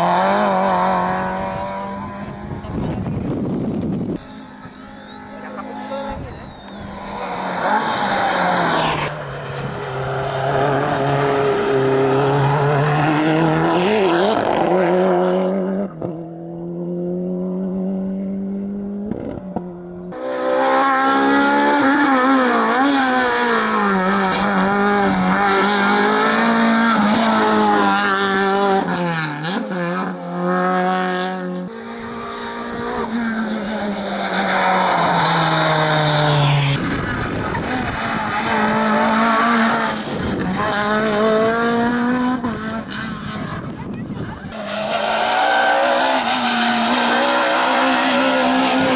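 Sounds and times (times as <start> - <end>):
rally car engines revving: 0.0 - 48.9
tyre squeal: 4.2 - 9.1, 43.3 - 48.9.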